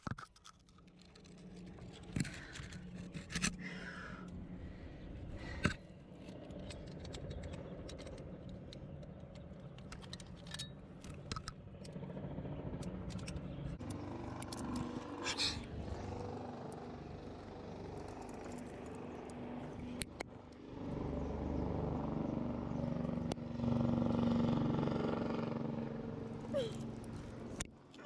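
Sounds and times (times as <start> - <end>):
climbing gear metallic clicks: 5.6 - 12.0, 12.7 - 16.9, 17.9 - 20.3.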